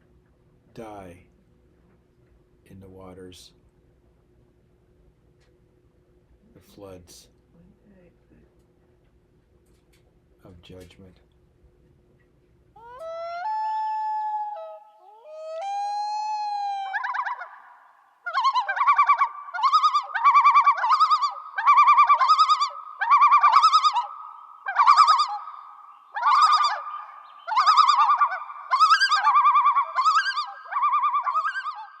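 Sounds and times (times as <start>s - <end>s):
warbling bird-like trilled call: 12.8s - 32.0s.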